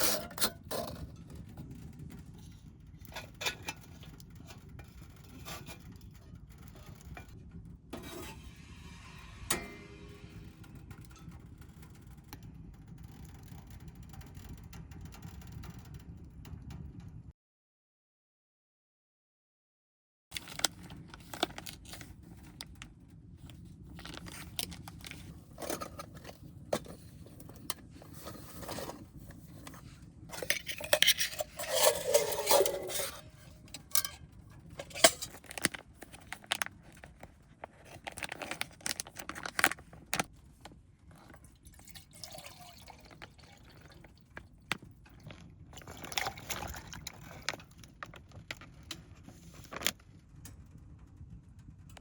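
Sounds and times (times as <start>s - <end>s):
liquid pouring into a pot: 41.4s - 48.0s.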